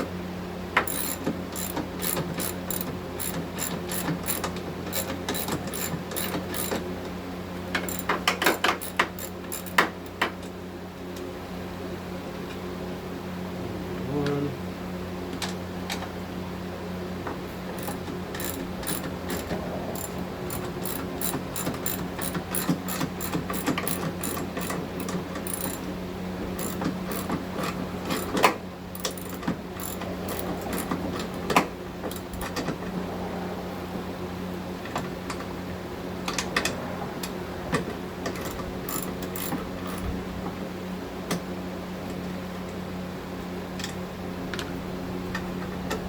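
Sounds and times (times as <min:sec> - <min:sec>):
ratchet wrench clicking: 0:00.8 - 0:06.9, 0:07.8 - 0:10.2, 0:17.8 - 0:25.9, 0:26.5 - 0:31.0, 0:32.1 - 0:32.6, 0:38.3 - 0:40.1
steady low hum: 0:16.8 - 0:34.7.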